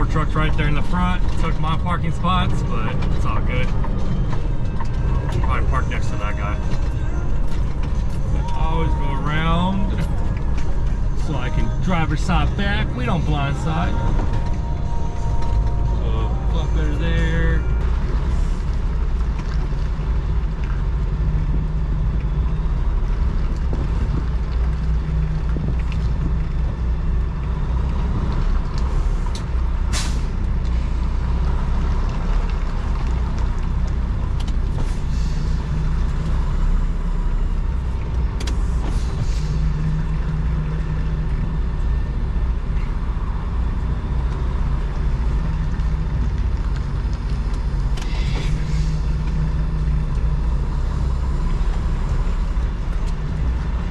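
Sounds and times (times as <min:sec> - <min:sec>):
diesel truck engine running: 0:00.0 - 0:53.9
air brake hisses: 0:48.0 - 0:49.1.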